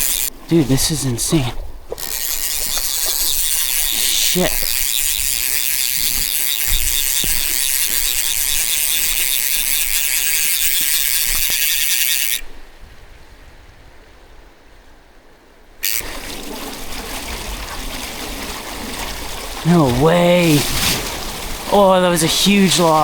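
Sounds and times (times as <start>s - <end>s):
fly reel drag buzzing: 0.0s - 12.5s, 15.8s - 16.8s
river rushing: 18.7s - 23.0s.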